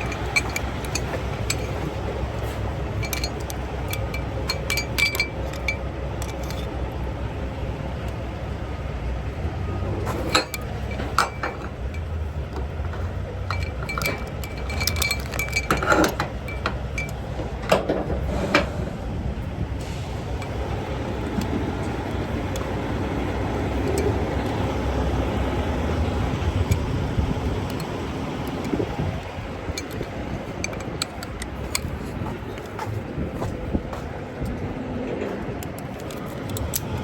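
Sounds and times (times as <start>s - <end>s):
light metallic clinks and rattles: 0.0s - 7.1s, 10.1s - 18.1s, 19.9s - 32.8s, 35.6s - 37.0s
vehicle low rumble: 0.0s - 37.0s.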